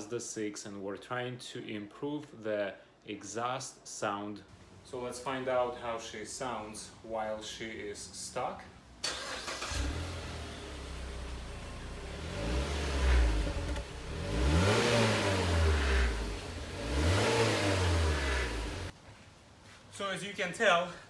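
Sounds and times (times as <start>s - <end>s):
car engine idling and revving: 9.1s - 19.0s.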